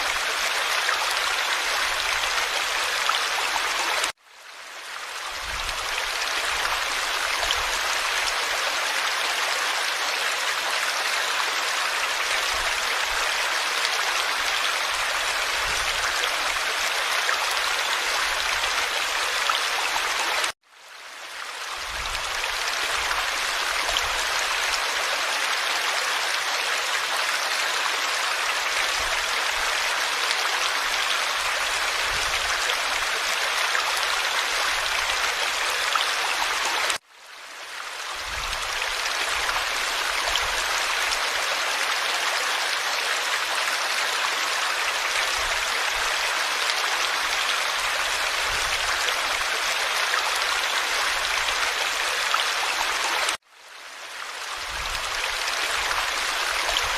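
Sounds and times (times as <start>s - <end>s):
stream babbling: 0.0s - 56.9s.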